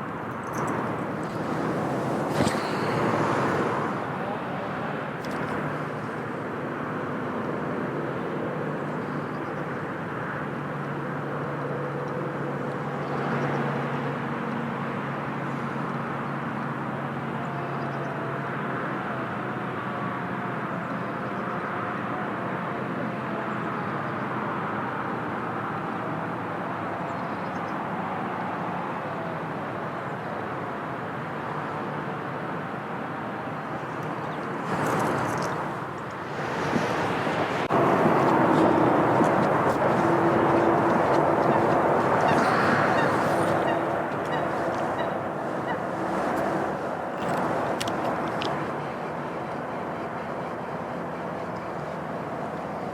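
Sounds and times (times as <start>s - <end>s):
distant engines droning: 0.0s - 52.9s.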